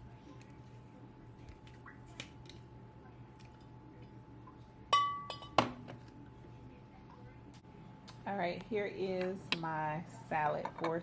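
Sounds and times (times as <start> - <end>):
glass clinking: 4.9 - 5.6.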